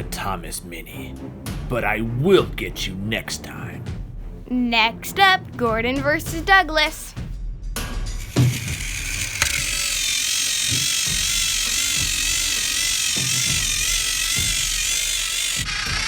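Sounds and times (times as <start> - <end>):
background music: 0.0 - 16.0
toy train motors whining: 8.1 - 16.0.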